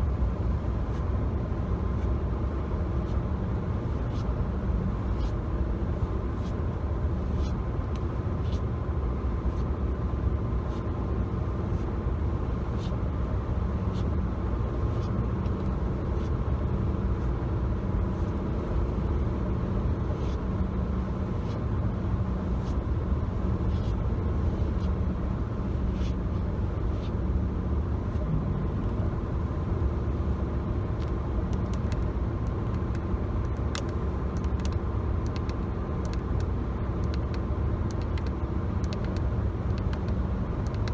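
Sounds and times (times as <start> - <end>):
road and engine rumble in car: 0.0 - 40.9.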